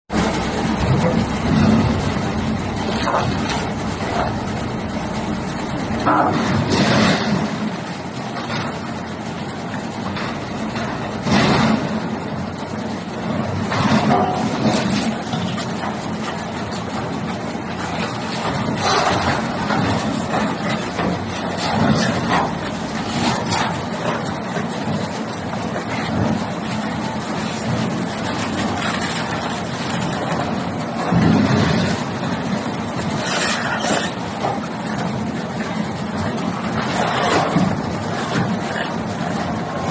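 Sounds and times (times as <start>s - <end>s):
wood shredder running: 0.1s - 8.8s.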